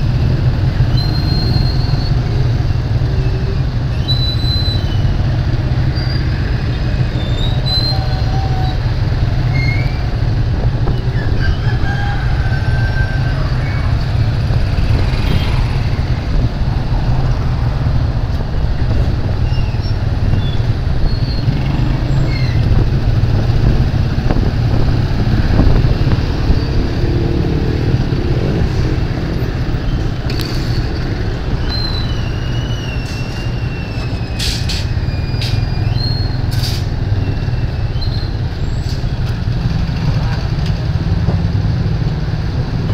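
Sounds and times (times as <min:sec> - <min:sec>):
motorcycle engine rumble: 0:00.0 - 0:42.9
street traffic: 0:00.0 - 0:42.9
high chirps and squeaks: 0:03.9 - 0:05.2, 0:05.8 - 0:10.2, 0:19.4 - 0:22.9, 0:29.4 - 0:39.2.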